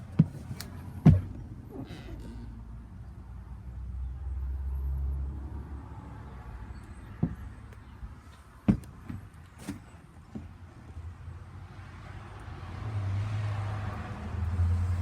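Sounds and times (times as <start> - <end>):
sharp knocks and thumps: 0.0 - 1.5, 7.2 - 7.5, 8.6 - 10.5.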